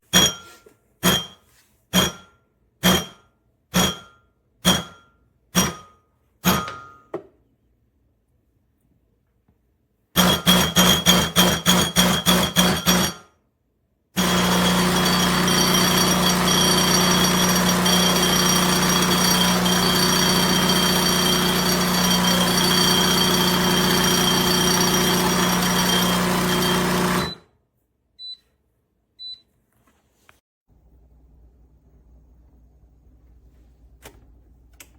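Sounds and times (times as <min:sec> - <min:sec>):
espresso machine pump buzzing: 0:14.2 - 0:27.4.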